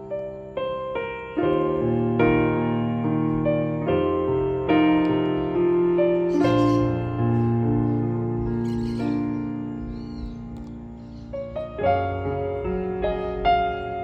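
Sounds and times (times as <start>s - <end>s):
slow gentle piano: 0.0s - 14.0s.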